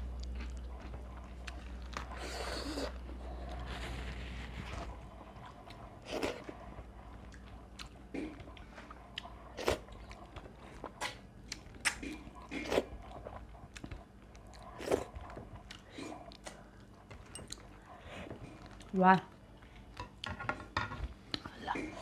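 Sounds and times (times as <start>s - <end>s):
person chewing crisp crunches: 0.0s - 4.4s.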